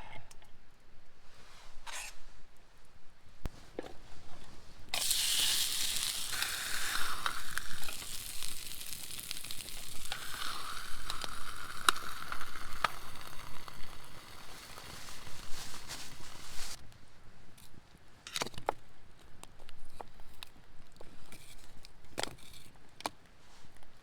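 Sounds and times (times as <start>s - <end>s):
food sizzling in a hot pan: 5.0s - 16.8s.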